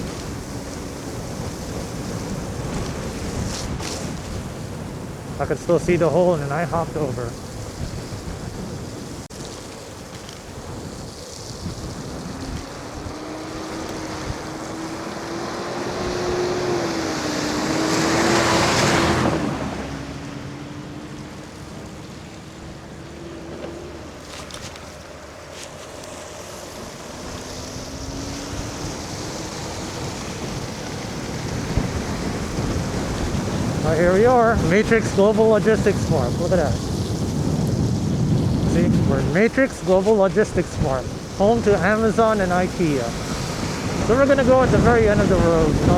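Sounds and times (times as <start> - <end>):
wind rushing over microphone: 0.0 - 45.9
electric motor whine: 9.7 - 20.6.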